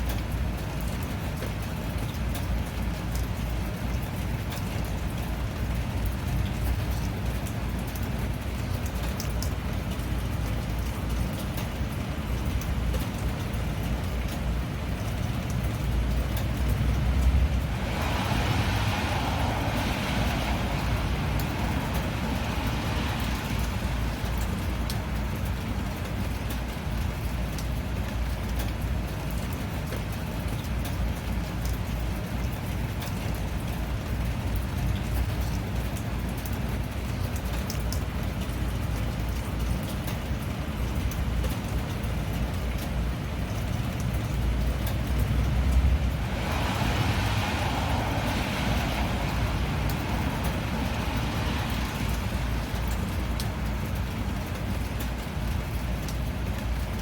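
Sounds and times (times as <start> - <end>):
road traffic rumble: 0.0 - 57.0
steady rain: 0.0 - 57.0
wet tyre hiss: 17.0 - 25.1, 45.1 - 53.7.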